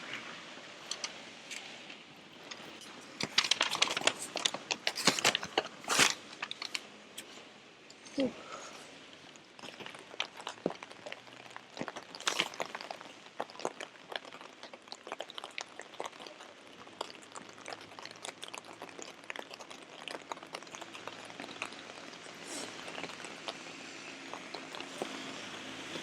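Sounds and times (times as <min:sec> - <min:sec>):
faint rain hiss: 0:00.0 - 0:19.3.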